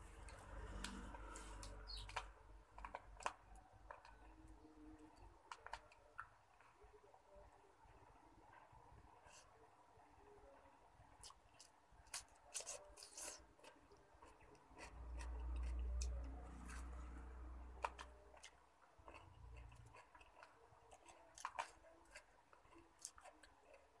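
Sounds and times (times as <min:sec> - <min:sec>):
close-up chewing: 0:10.6 - 0:24.0.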